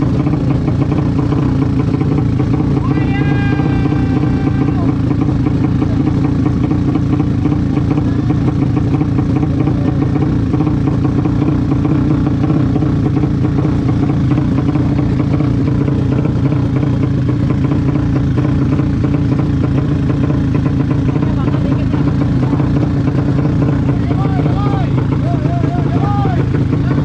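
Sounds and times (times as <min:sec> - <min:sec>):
vehicle engine running steadily: 0:00.0 - 0:27.0.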